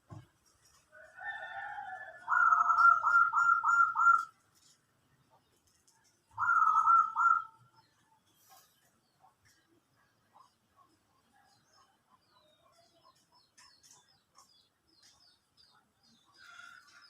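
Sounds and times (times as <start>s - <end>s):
dove cooing: 2.0s - 4.3s, 6.3s - 7.7s.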